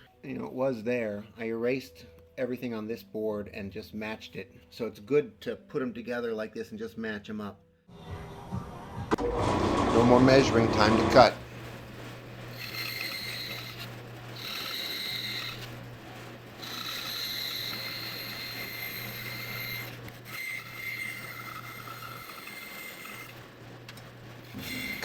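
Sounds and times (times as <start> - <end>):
bandsaw cutting whine: 8.0 - 25.0
bandsaw motor hum: 8.0 - 25.0.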